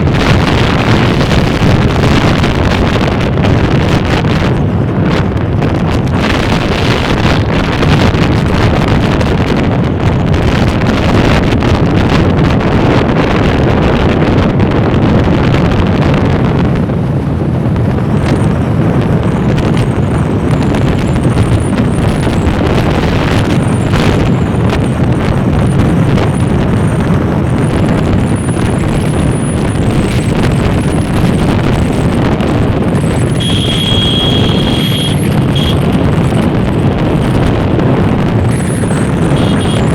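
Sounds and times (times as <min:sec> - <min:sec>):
vehicle noise: 0:00.0 - 0:39.9
wind buffeting microphone: 0:00.0 - 0:39.9
high steady tone: 0:33.2 - 0:35.8, 0:38.5 - 0:39.9.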